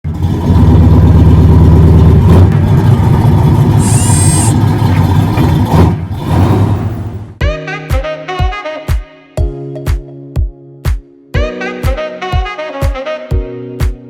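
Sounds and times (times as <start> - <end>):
car engine deep rumble: 0.0 - 7.4
brief high-pitched squeal: 3.8 - 4.6.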